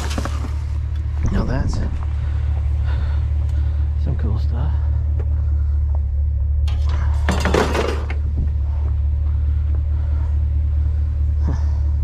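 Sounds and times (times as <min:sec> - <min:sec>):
junk clattering in a dumpster: 0:00.0 - 0:00.8, 0:06.7 - 0:08.4
steady low rumble: 0:00.0 - 0:12.0.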